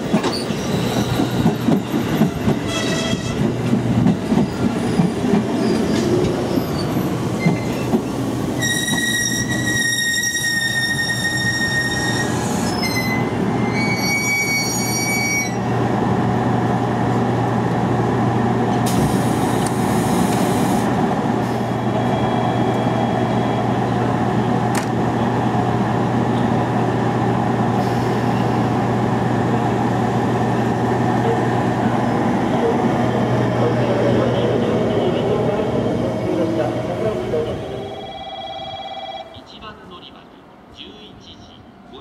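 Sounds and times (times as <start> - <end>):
halted train humming: 0.0 - 42.0
train brakes squealing: 0.2 - 3.3, 4.5 - 8.0, 8.6 - 15.6.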